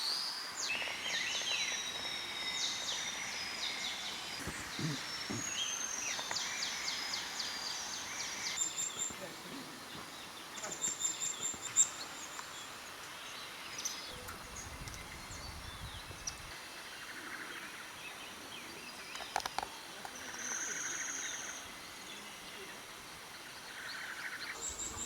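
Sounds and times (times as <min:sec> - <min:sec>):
bird chirps and trills: 0:00.6 - 0:16.5.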